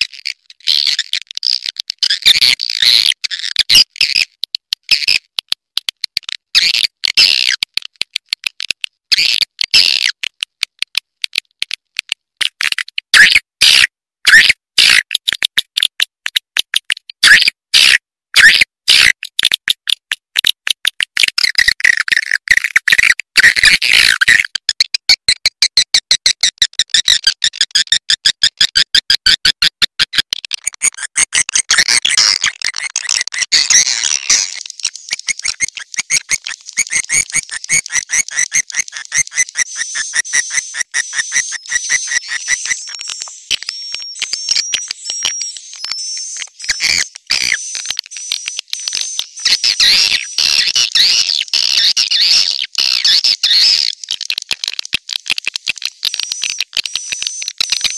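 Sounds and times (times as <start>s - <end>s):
swiftlets chattering twitters: 30.8s - 57.9s.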